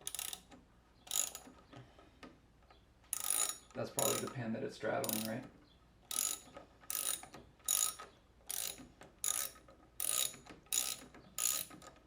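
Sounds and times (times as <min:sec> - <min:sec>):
ratchet wrench clicking: 0:00.0 - 0:00.5, 0:01.1 - 0:01.5, 0:03.1 - 0:04.4, 0:05.0 - 0:05.4, 0:06.1 - 0:12.0.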